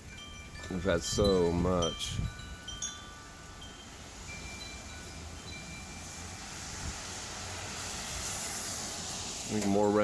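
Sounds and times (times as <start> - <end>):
wind chimes ringing: 0.0 - 6.5
steady hiss: 0.1 - 10.0.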